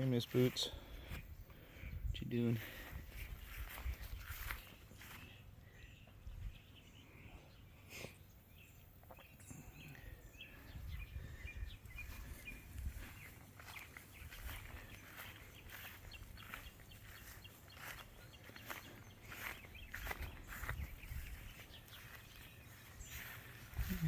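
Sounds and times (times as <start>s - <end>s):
distant birds chirping: 0.0s - 24.0s.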